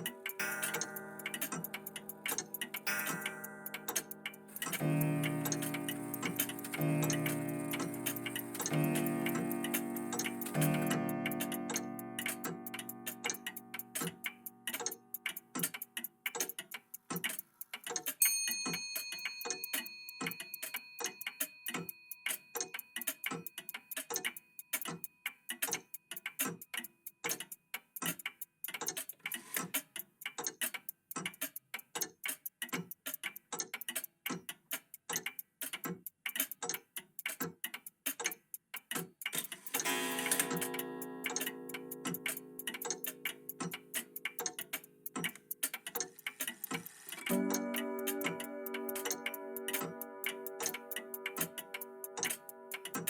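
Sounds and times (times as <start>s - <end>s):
bell-like clock chime: 0.0s - 14.7s, 18.2s - 24.7s, 39.8s - 45.1s, 47.2s - 53.0s
mechanical clocks ticking: 0.0s - 53.0s.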